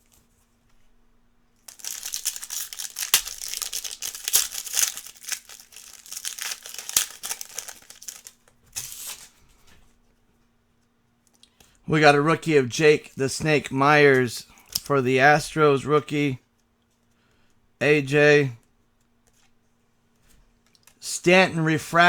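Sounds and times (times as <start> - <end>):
foil wrapper tearing and crinkling: 1.7 - 9.3.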